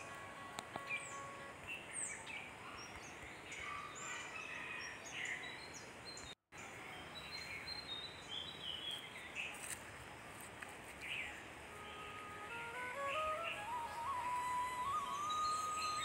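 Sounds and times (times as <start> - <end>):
steady hiss: 0.0 - 3.3, 8.0 - 16.0
birds chirping and calling: 0.0 - 6.3, 13.0 - 16.0.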